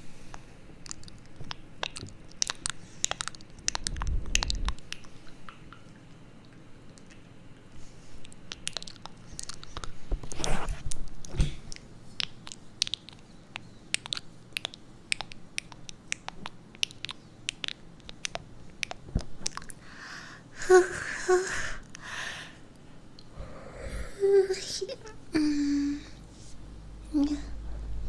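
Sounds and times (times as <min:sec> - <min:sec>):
crisp clicks and crackles: 0:00.8 - 0:05.1.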